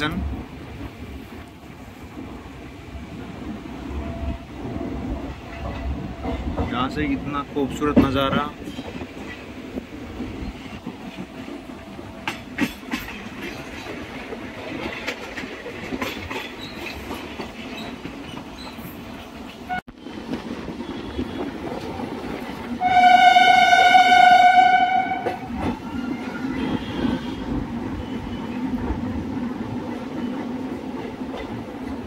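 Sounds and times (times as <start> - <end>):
train rumbling on rails: 0.0 - 32.0
wheels clacking over rail joints: 3.9 - 32.0
train horn blast: 22.8 - 25.5.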